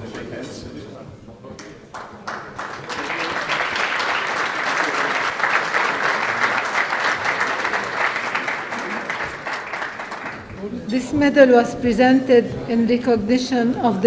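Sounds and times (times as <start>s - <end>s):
audience applauding: 1.6s - 11.6s.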